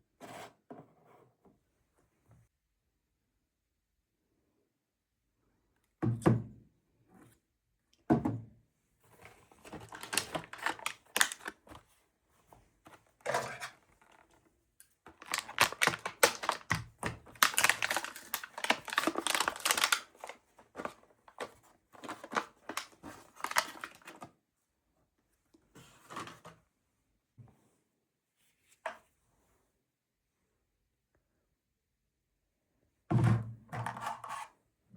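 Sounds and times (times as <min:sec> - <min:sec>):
objects clicking and clattering: 0:09.6 - 0:11.6, 0:15.1 - 0:24.2.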